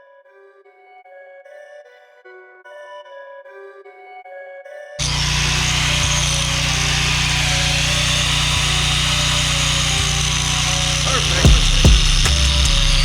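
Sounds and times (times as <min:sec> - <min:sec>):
low hum: 0:05.0 - 0:13.0
welding hiss: 0:05.0 - 0:13.0.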